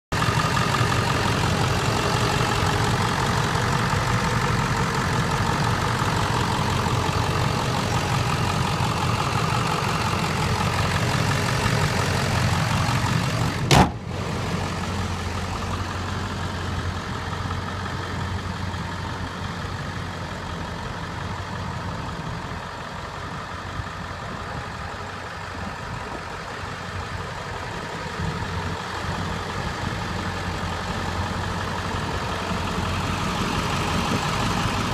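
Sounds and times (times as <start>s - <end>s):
diesel engine idling: 0.1s - 34.9s
sharp knock: 13.7s - 14.0s.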